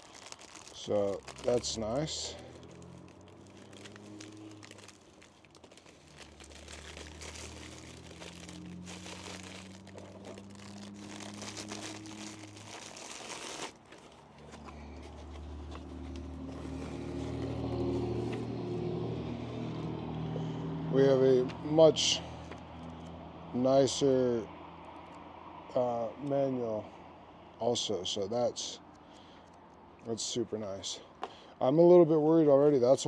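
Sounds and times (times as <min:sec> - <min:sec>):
packaging crinkling and rustling: 0:00.0 - 0:18.5.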